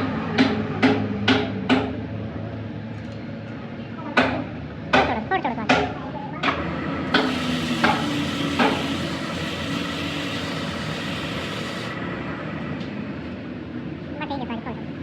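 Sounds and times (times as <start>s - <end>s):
steady workshop hum: 0.0s - 15.0s
arc welding crackling and sizzling: 7.1s - 12.0s.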